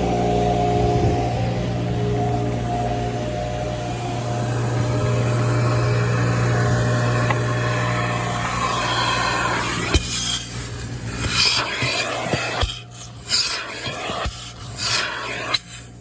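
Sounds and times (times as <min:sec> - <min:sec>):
vacuum motor hum: 0:00.0 - 0:16.0
air rushing through hose: 0:07.0 - 0:16.0.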